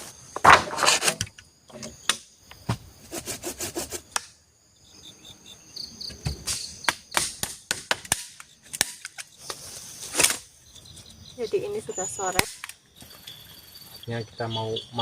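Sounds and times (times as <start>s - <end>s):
rubbing scrapes: 0.0s - 1.2s, 3.0s - 4.1s
high insect calls: 0.0s - 15.0s
insects chirping: 0.0s - 15.0s.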